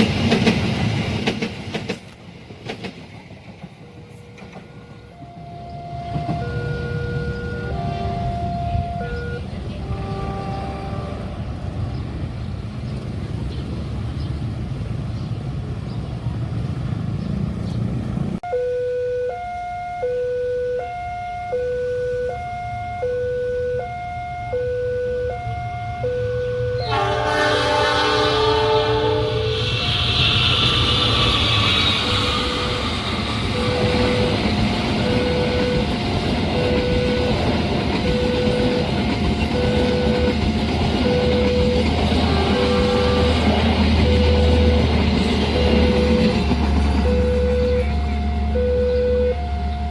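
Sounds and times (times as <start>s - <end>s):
rumble of passing train: 0.0s - 18.4s, 20.6s - 49.9s
level crossing two-tone alarm: 5.2s - 9.4s, 18.4s - 26.9s, 32.1s - 32.9s, 33.5s - 43.4s, 44.0s - 44.9s, 45.5s - 49.9s.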